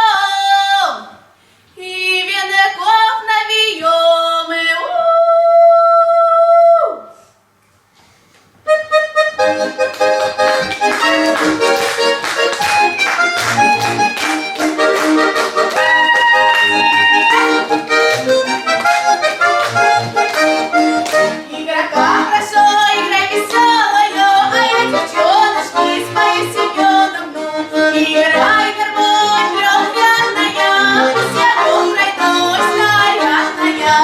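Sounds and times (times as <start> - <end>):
accordion folk dance tune: 8.7 - 34.0.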